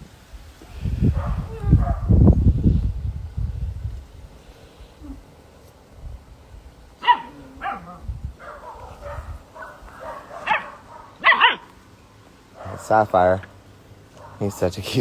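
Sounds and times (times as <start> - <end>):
puppies barking and yipping: 7.0 - 11.8, 12.5 - 13.3, 14.1 - 14.7.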